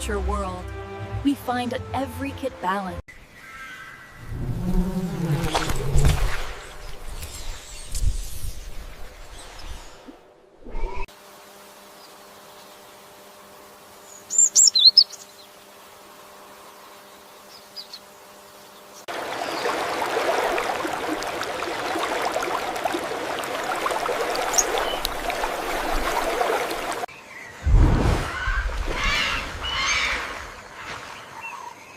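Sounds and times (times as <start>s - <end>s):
bird chirps: 14.1s - 15.4s.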